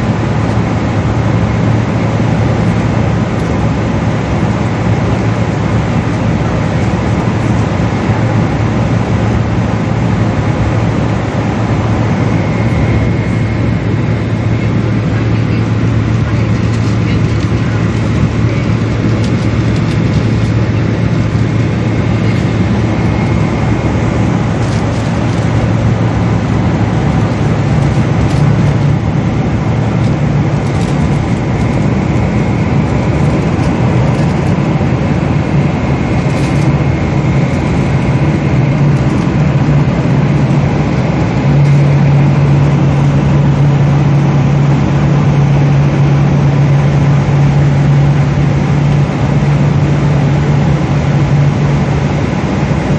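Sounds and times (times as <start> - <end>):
jet engine cabin drone: 0.0 - 52.9
low hum: 0.0 - 52.9.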